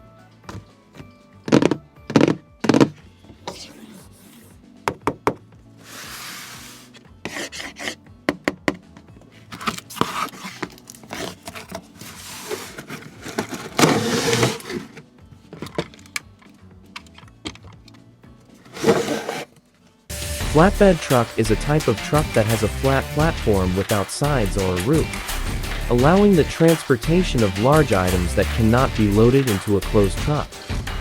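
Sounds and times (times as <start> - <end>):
scraping and rubbing of small parts: 9.4 - 15.0.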